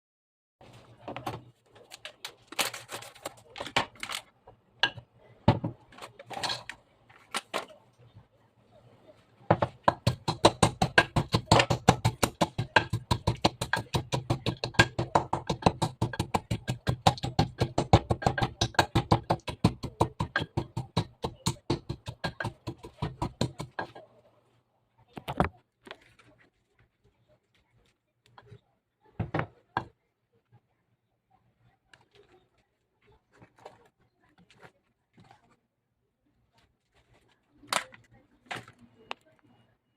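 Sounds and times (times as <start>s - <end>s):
nuts being pounded: 9.5s - 23.9s.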